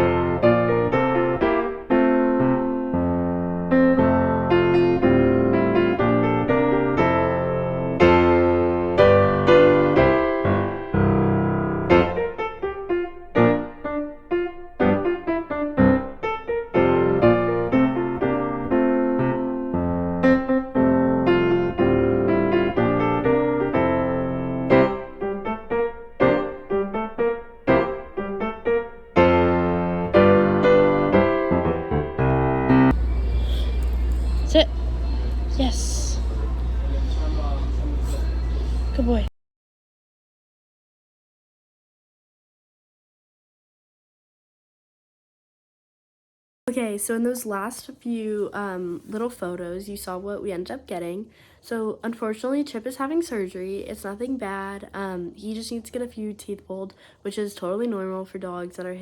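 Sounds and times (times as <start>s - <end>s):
lively piano music: 0.0s - 34.4s.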